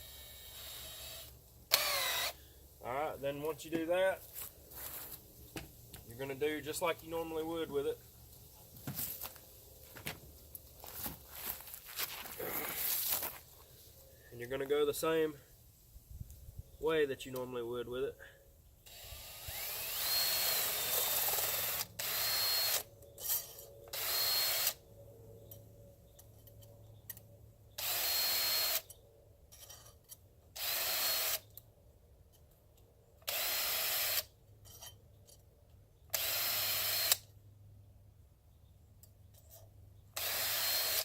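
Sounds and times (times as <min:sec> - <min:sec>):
electric drill motor whine: 0:00.0 - 0:02.4, 0:18.9 - 0:22.9, 0:23.9 - 0:24.8, 0:27.8 - 0:28.8, 0:30.6 - 0:31.4, 0:33.3 - 0:34.2, 0:36.2 - 0:37.2, 0:40.2 - 0:41.0.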